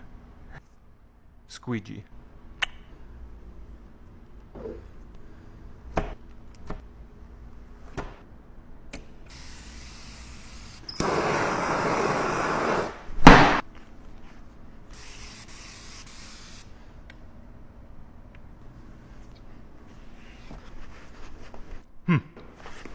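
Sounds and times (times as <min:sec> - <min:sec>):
sprayer hissing water: 0:11.0 - 0:13.0.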